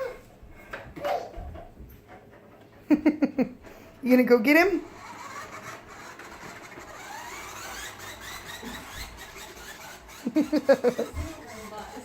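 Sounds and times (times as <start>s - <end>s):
toy truck rolling on floor: 4.5s - 12.0s.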